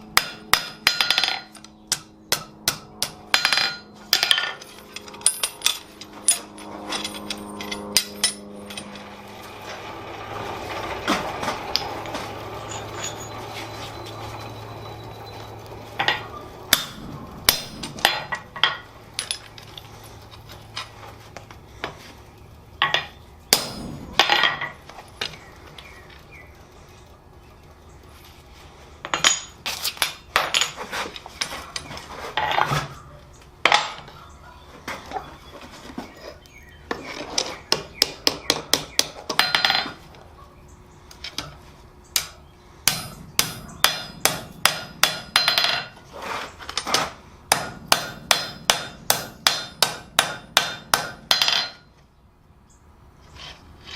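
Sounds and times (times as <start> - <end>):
low hum: 0.0 - 29.1, 40.3 - 53.2
hammer striking steel on anvil: 0.2 - 8.8, 16.0 - 19.4, 22.9 - 24.8, 42.2 - 46.0, 47.5 - 51.8
steady rushing noise: 15.6 - 20.4, 23.5 - 25.6.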